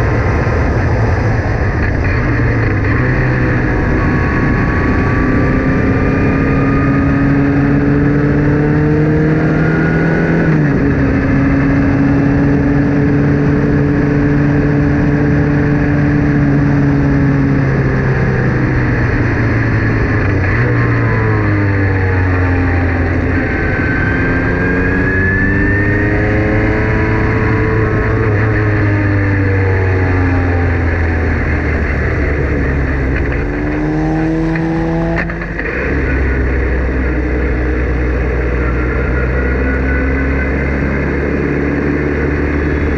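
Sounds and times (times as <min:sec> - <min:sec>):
racing car engine revving: 0:00.0 - 0:42.9
gear change: 0:08.8 - 0:42.9.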